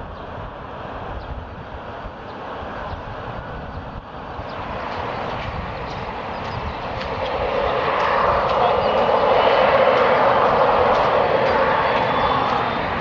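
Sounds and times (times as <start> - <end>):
jet engines roaring: 4.4 - 13.0
faint high whine: 4.5 - 13.0.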